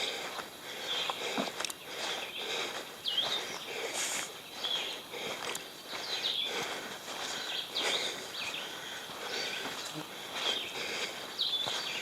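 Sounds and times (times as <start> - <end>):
footsteps crunching on rough ground: 0.0 - 12.0.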